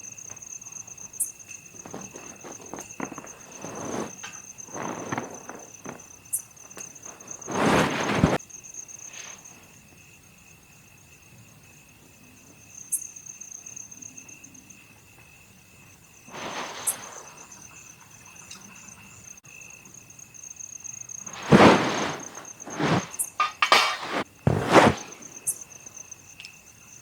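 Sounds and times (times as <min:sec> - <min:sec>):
crickets trilling: 0:00.0 - 0:27.0
brief rustle: 0:01.8 - 0:06.0, 0:06.8 - 0:08.4, 0:21.3 - 0:25.5.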